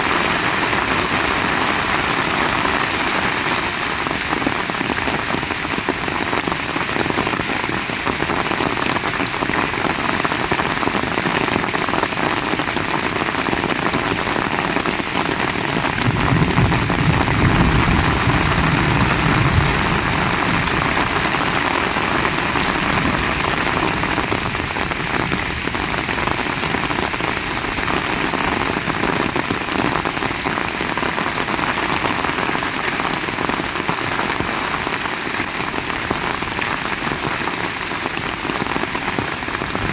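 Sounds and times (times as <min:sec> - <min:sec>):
heavy rain falling: 0:00.0 - 0:39.9
low rumble: 0:15.9 - 0:25.1.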